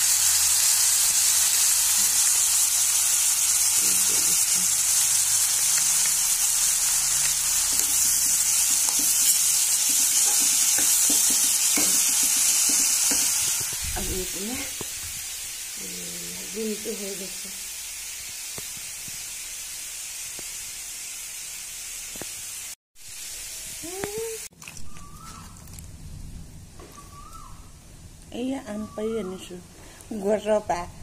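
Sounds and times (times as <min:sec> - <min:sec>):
vegetables sizzling in hot oil: 0:00.0 - 0:25.9
metal spoon scraping a pan: 0:05.6 - 0:13.7.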